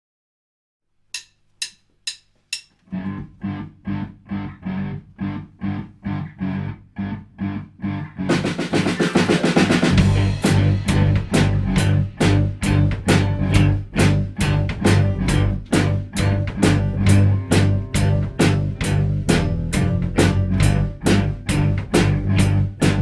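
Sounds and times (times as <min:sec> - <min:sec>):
drumsticks clicking count-in: 0:01.1 - 0:02.9
drums and bass beat: 0:01.2 - 0:03.4, 0:08.3 - 0:23.0
snare drum roll with cymbals: 0:08.3 - 0:12.4
full band playing: 0:08.3 - 0:23.0.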